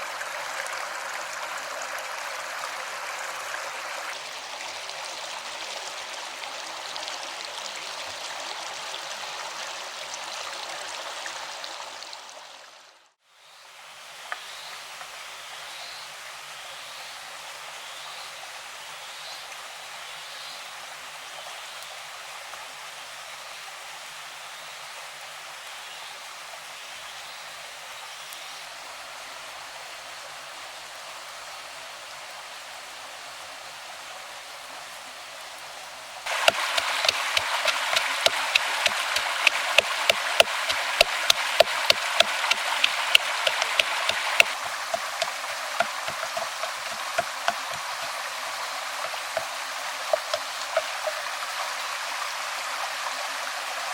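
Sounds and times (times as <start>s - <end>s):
stream water running: 0.0s - 53.9s
water splashing: 36.3s - 52.1s.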